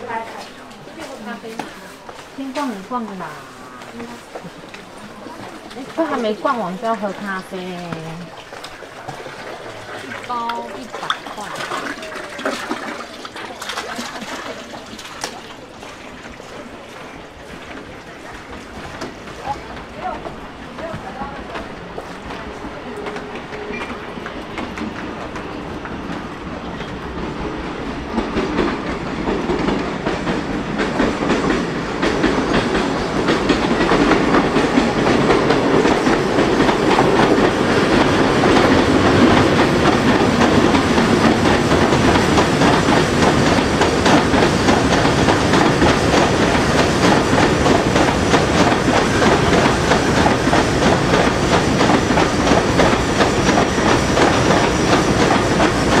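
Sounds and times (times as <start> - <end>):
train rumbling rush: 0.0 - 56.0
train wheels clicking over rail joints: 0.4 - 56.0.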